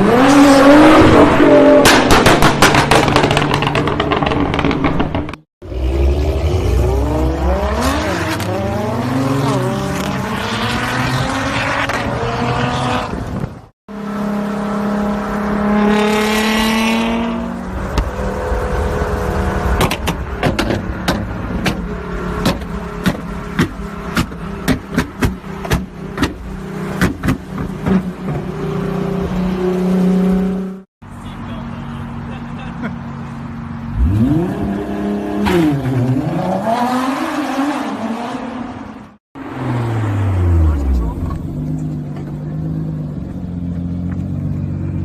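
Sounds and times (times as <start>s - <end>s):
sharp exhaust pops: 1.8s - 5.4s
car engine revving: 33.9s - 45.0s.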